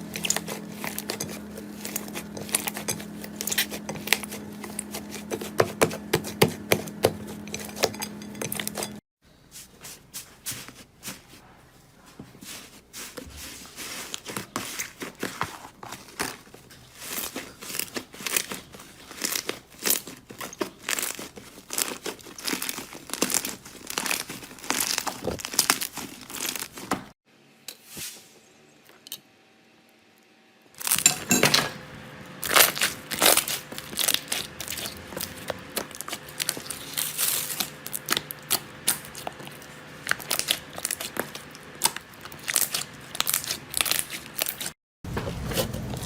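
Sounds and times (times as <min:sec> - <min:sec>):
steady low hum: 0:00.0 - 0:09.0
slime crackling and popping: 0:17.0 - 0:26.9, 0:32.4 - 0:44.7.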